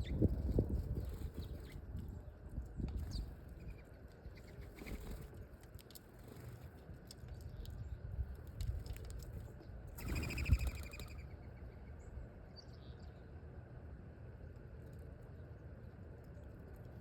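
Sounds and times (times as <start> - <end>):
bird wingbeats: 4.4 - 5.5, 10.0 - 11.2
birds chirping: 9.6 - 13.4.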